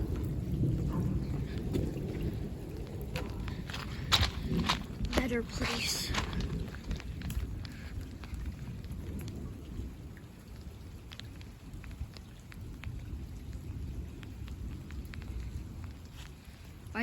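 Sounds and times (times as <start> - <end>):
continuous low rumble: 0.0 - 17.0
rain falling: 0.0 - 17.0.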